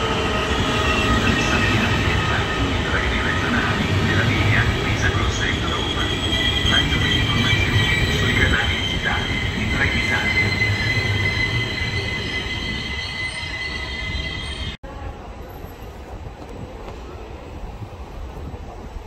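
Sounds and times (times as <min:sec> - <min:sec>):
quiet station background: 0:00.0 - 0:19.0
rolling train rumble: 0:00.0 - 0:19.0
high squeal of wheels and brakes: 0:05.2 - 0:14.8.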